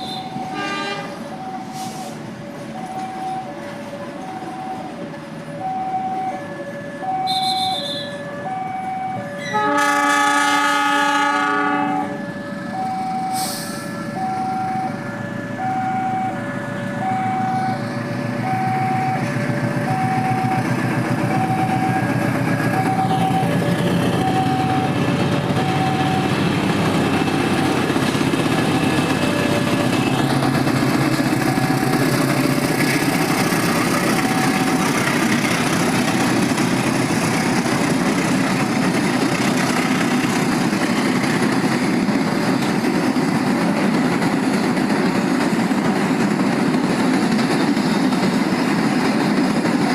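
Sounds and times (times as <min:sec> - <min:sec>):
locomotive horn: 0:00.0 - 0:02.0, 0:06.9 - 0:08.3, 0:09.2 - 0:17.5
level-crossing alarm beeping: 0:00.0 - 0:09.8, 0:11.8 - 0:30.5, 0:31.1 - 0:32.4, 0:33.1 - 0:36.5
passing train rumble: 0:00.0 - 0:49.9.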